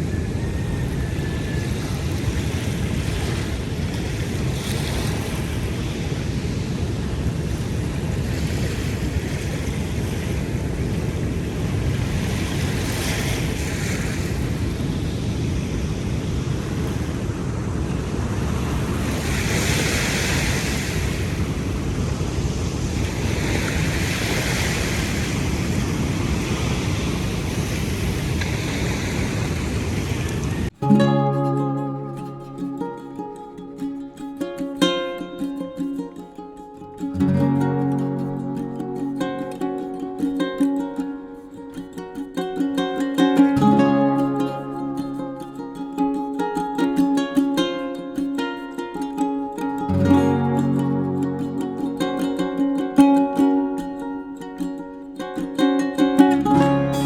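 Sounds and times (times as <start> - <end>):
wind rumble on microphone: 0.0 - 30.8
ocean surf washing onto beach: 0.0 - 57.0.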